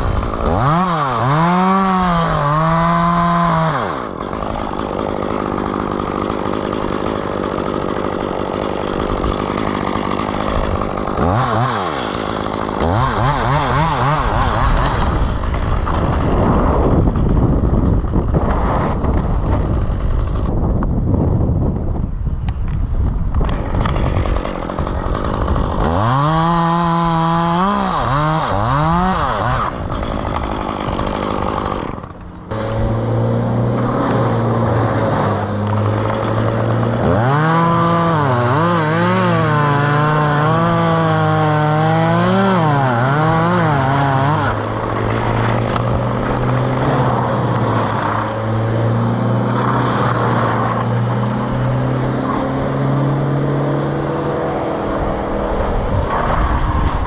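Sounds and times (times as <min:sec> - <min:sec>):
chainsaw revving: 0:00.0 - 0:20.7, 0:23.4 - 0:56.0
engine running steadily: 0:29.7 - 0:37.2.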